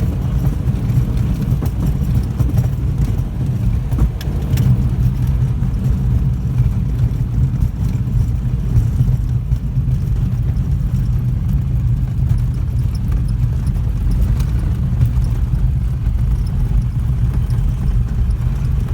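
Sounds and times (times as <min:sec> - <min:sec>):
aircraft engine low drone: 0:00.0 - 0:18.9
bumpy rumble: 0:00.0 - 0:18.9.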